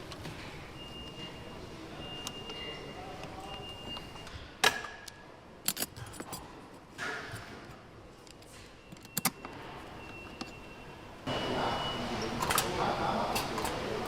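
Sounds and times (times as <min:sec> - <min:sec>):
faint high-pitched equipment tone: 0:00.6 - 0:04.3, 0:08.5 - 0:13.2.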